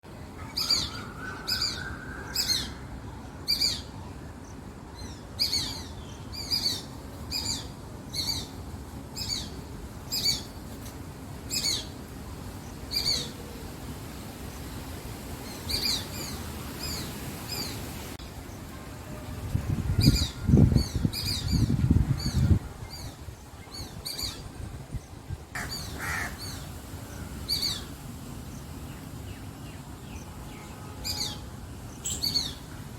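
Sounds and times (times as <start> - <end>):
bird calling: 25.6 - 27.9.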